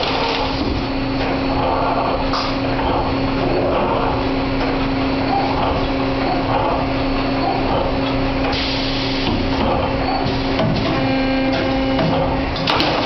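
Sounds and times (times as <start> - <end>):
wire bending machine running: 0.0 - 13.0.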